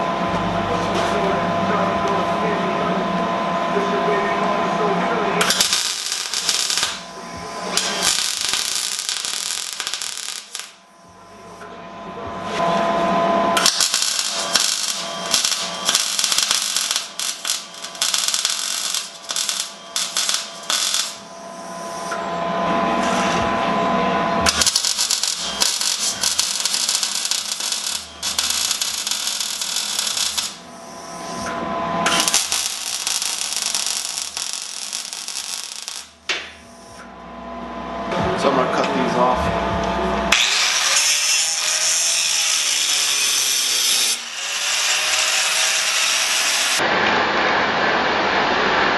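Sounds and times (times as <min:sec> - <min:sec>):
angle grinder grinding steel: 0:05.4 - 0:10.8, 0:13.6 - 0:21.3, 0:24.4 - 0:31.4, 0:32.0 - 0:36.1, 0:40.4 - 0:46.9
welder crackling: 0:05.4 - 0:10.8, 0:13.6 - 0:21.3, 0:24.4 - 0:31.2, 0:32.0 - 0:36.6, 0:40.4 - 0:47.0.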